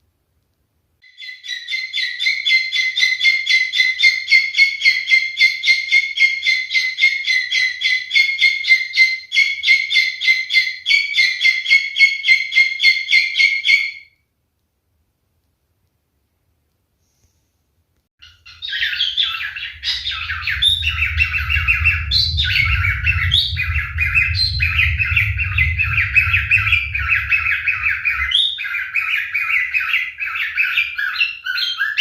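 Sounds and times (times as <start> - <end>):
cockatiel chirping: 1.1 - 14.0, 18.2 - 21.8, 27.0 - 32.0.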